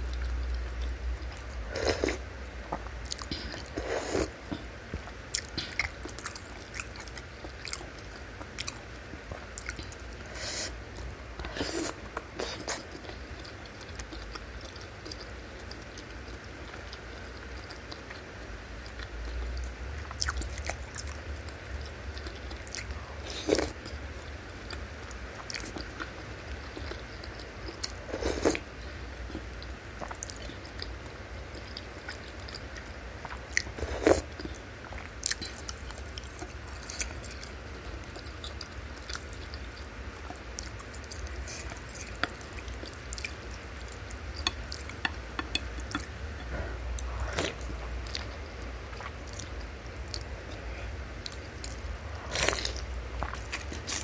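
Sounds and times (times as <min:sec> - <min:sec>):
low hum: 0:00.0 - 0:54.0
wet chewing and mouth clicks: 0:31.5 - 0:54.0.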